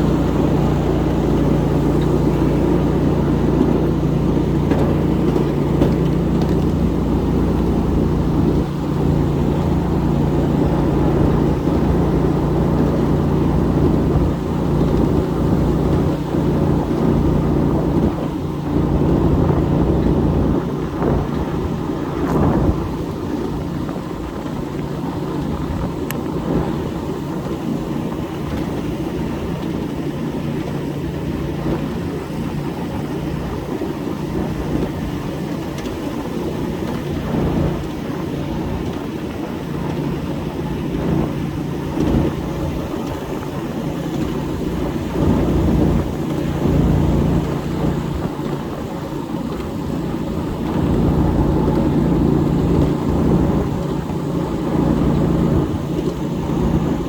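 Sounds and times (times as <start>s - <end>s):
train wheels rumbling on rail: 0.0s - 57.0s
steady hum: 36.6s - 57.0s.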